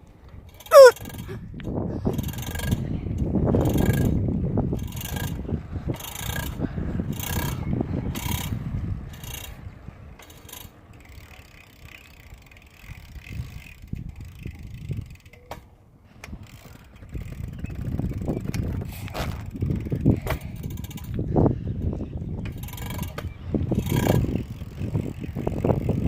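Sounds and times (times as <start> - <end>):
bicycle clicking and rattling: 0.0 - 26.0.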